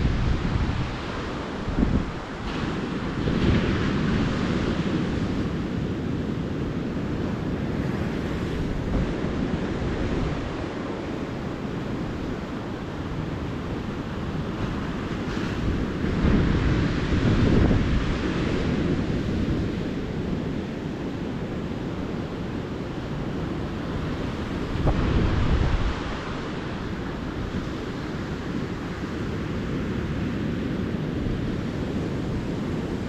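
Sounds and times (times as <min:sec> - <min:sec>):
ocean surf breaking: 0:00.0 - 0:33.0
wind buffeting microphone: 0:00.0 - 0:33.0.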